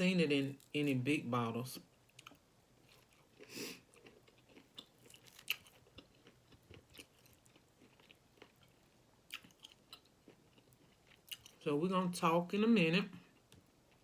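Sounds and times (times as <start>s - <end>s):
faint chewing: 1.8s - 11.6s.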